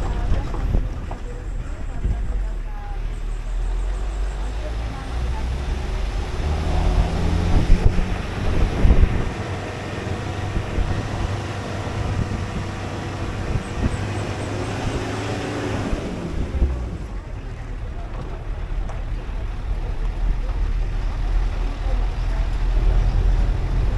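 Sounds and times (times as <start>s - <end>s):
vehicle engine low rumble: 0.0s - 23.9s
wind buffeting microphone: 0.0s - 23.9s.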